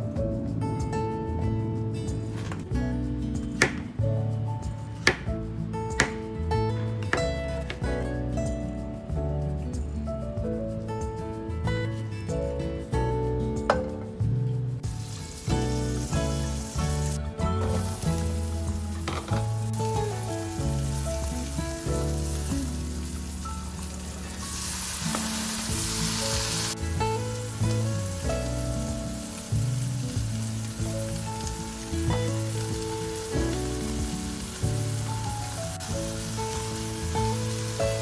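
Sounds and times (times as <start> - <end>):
background music with bass: 0.0 - 38.0
food sizzling in frying pan: 14.8 - 38.0.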